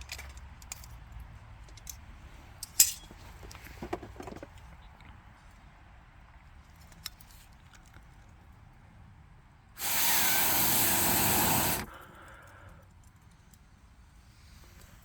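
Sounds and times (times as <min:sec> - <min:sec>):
fire flaring rush: 0:09.8 - 0:11.9
air blown into embers hissing: 0:09.8 - 0:12.7.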